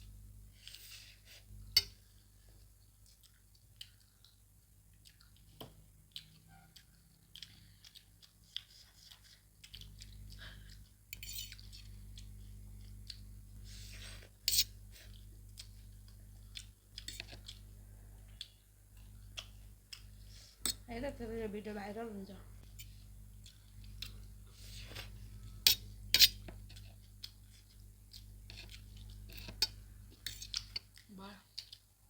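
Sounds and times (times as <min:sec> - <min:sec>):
steady low hum: 0:00.0 - 0:03.3, 0:09.2 - 0:31.2
people chewing noodles: 0:00.6 - 0:20.9, 0:22.6 - 0:32.0.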